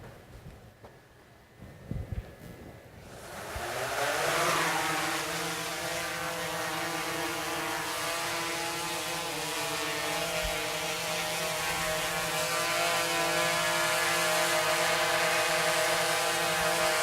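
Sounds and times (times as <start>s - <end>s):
drone propellers buzzing: 1.9s - 17.0s.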